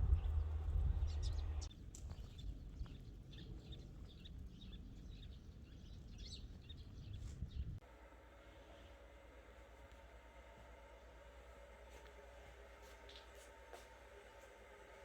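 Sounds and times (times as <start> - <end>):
low rumble: 0.0 - 1.7
small birds chirping: 0.0 - 7.8.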